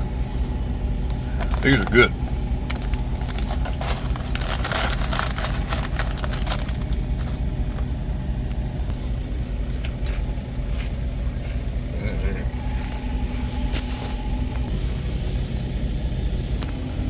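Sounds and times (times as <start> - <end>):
diesel engine idling: 0.0 - 17.0
rustling: 2.6 - 7.9.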